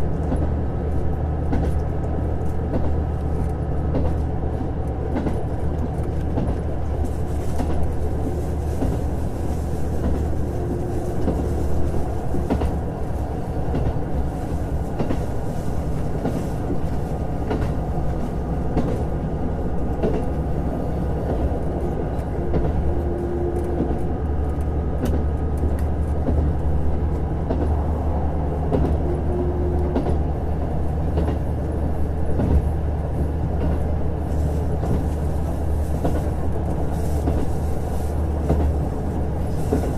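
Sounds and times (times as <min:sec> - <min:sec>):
diesel railcar engine hum: 0:00.0 - 0:39.9.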